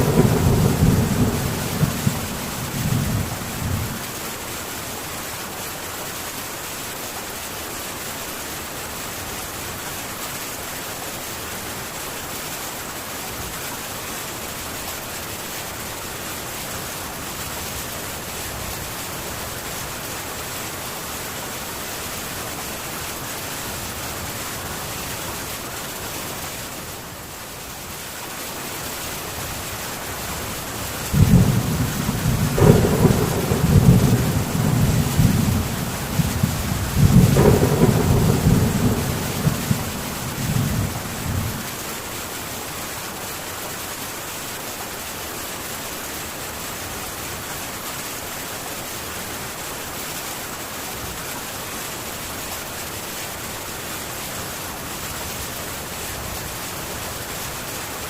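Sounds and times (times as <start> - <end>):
low thunder rumble: 0.0 - 4.1, 31.1 - 41.7
heavy rain on a tin roof: 0.0 - 58.0.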